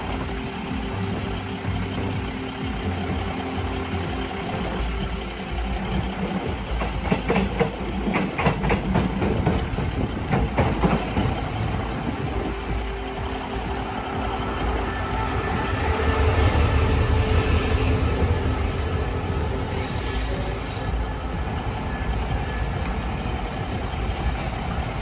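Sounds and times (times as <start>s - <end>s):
diesel train engine hum: 0.0s - 25.0s
wheel clacks over rail joints: 0.3s - 13.9s.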